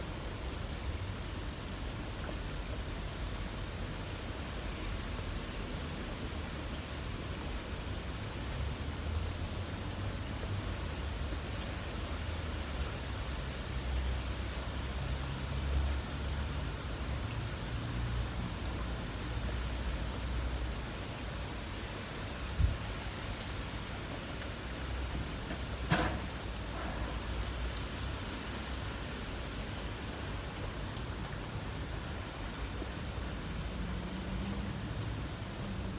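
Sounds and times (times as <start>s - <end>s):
light rain hiss: 0.0s - 35.9s
insects trilling: 0.1s - 35.9s
short thump: 25.5s - 27.2s.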